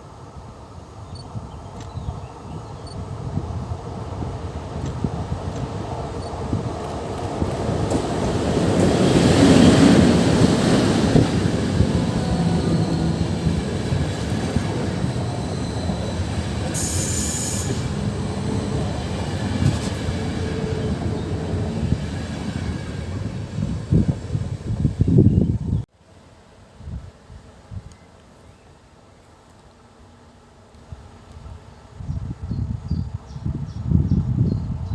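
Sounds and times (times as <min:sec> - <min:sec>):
carriages rumbling on rails: 0:02.1 - 0:25.2
passenger train rolling past: 0:02.3 - 0:25.8
brief high hiss: 0:16.8 - 0:17.9.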